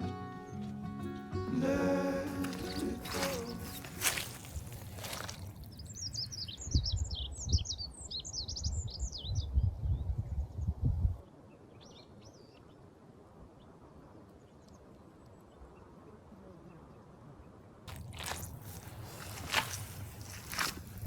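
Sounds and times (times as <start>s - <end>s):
songbird twittering: 2.5s - 10.1s.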